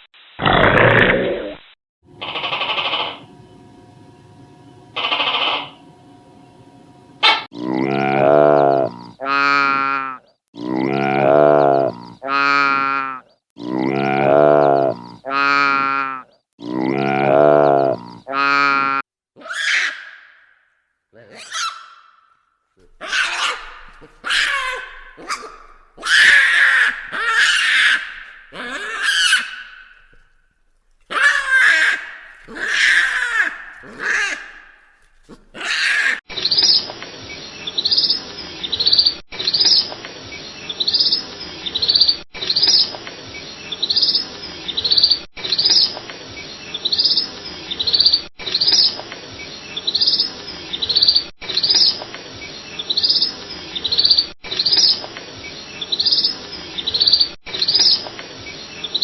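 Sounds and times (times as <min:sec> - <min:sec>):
loud wavering animal calls: 0:02.2 - 0:03.4, 0:05.0 - 0:05.8, 0:07.2 - 0:10.2, 0:19.4 - 0:20.4, 0:21.2 - 0:22.2, 0:22.9 - 0:30.3, 0:31.0 - 0:36.2
birds chirping: 0:22.9 - 0:30.3.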